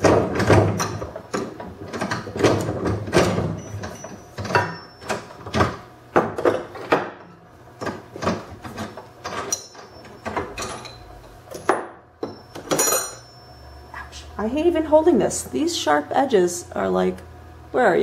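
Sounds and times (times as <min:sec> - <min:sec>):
metal parts clicking and clanking: 0:07.8 - 0:13.2.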